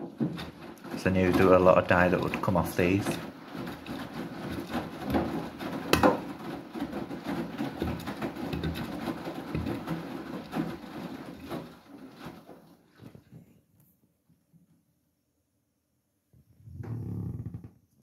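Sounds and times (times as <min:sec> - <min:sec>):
washing machine drum tumbling: 0:00.0 - 0:13.1
water sloshing and splashing: 0:00.0 - 0:13.4
small knocks: 0:00.0 - 0:13.5.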